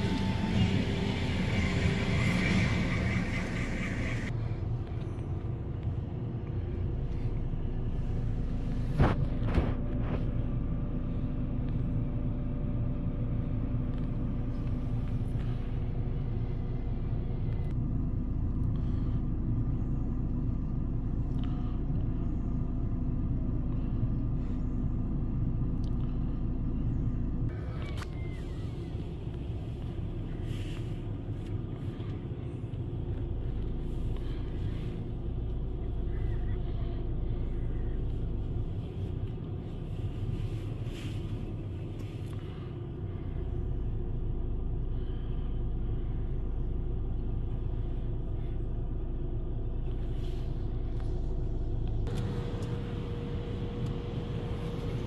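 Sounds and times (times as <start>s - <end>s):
car wash rumble: 0.0s - 4.6s, 27.6s - 44.0s, 45.0s - 55.0s
steady hum: 0.0s - 4.8s, 5.7s - 55.0s.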